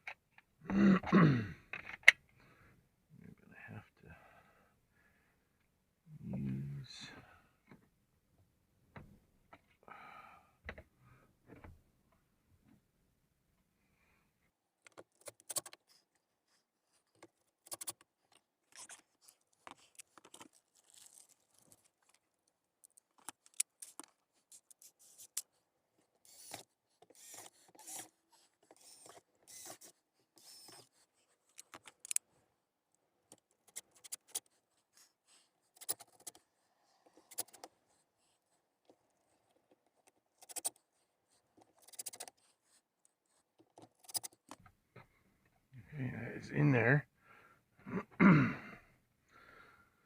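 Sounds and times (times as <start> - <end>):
small parts and tools rattling: 14.8 - 16.1, 17.0 - 32.3, 33.3 - 34.5, 35.7 - 37.7, 38.8 - 40.9, 41.5 - 42.5, 43.6 - 44.7.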